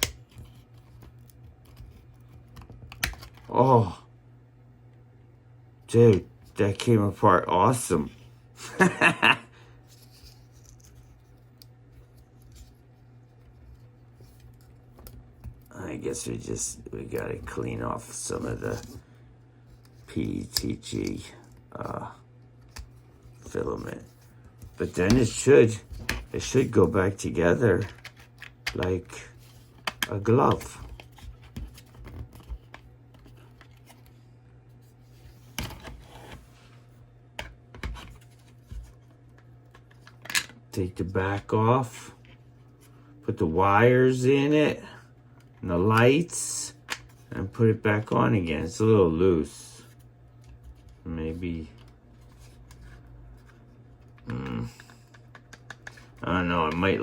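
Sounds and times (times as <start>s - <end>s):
steady low hum: 0.0s - 57.0s
plastic parts clicking and scratching: 27.7s - 28.9s, 51.7s - 57.0s
plastic parts scratching and clicking: 27.7s - 34.1s, 50.4s - 57.0s.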